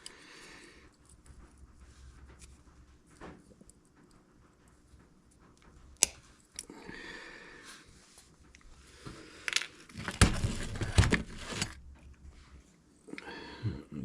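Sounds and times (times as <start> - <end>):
knocks and clatter of tools: 9.5 - 12.1.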